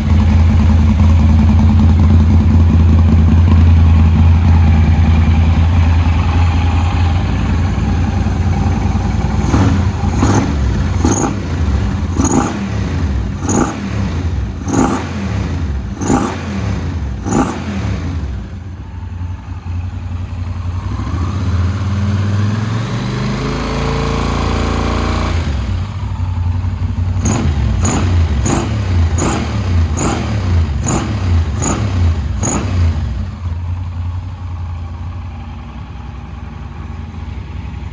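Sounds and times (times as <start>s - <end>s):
motorcycle engine idling and revving: 0.0s - 37.9s.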